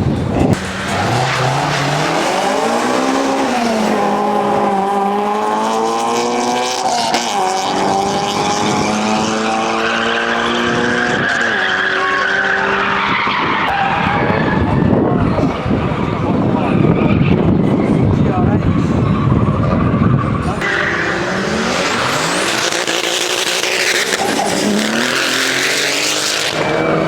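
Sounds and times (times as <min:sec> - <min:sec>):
car engine revving hard: 0:00.5 - 0:14.4, 0:18.8 - 0:27.0.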